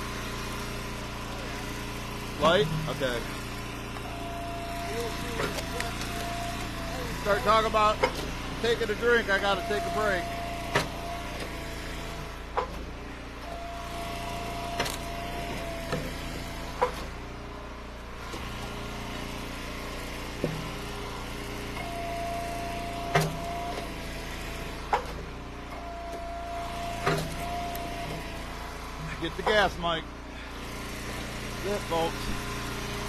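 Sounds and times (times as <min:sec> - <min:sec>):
log splitter engine running: 0:00.0 - 0:33.0
higher steady hydraulic tone: 0:02.4 - 0:12.4, 0:13.2 - 0:17.0, 0:20.6 - 0:33.0.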